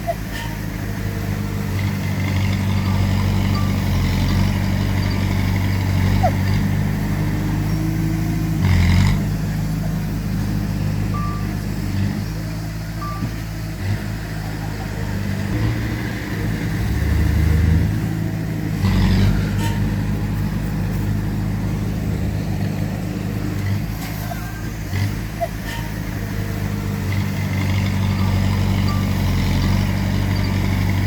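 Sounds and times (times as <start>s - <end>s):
heavy diesel engines running: 0.0s - 31.0s
short beeps: 11.1s - 11.6s, 13.0s - 13.4s
metal clanking: 15.5s - 31.0s.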